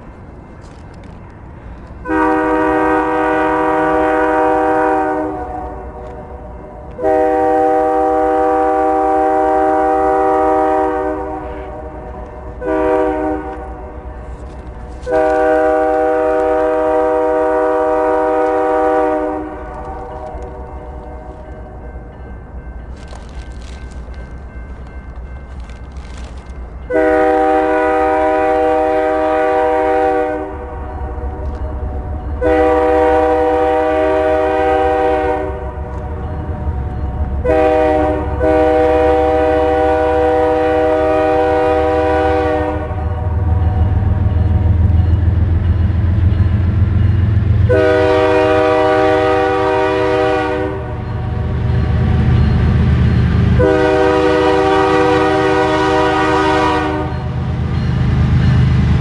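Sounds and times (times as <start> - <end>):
diesel locomotive rumble: 0.0 - 59.0
locomotive air horn blasts: 2.0 - 14.0, 15.0 - 21.0, 26.9 - 31.2, 32.4 - 36.3, 37.4 - 43.6, 47.6 - 51.0, 53.6 - 57.3.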